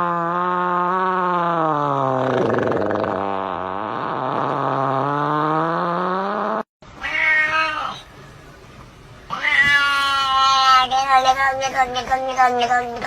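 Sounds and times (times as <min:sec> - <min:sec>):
cat meowing: 0:07.0 - 0:08.1, 0:09.3 - 0:13.0.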